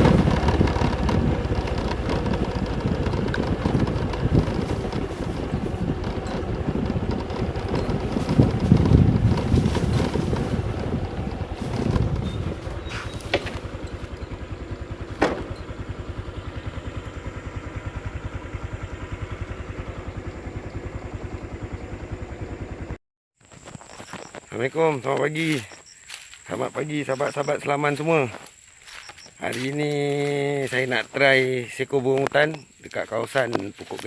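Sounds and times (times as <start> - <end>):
small engine running: 0.0 - 23.0, 28.3 - 31.1.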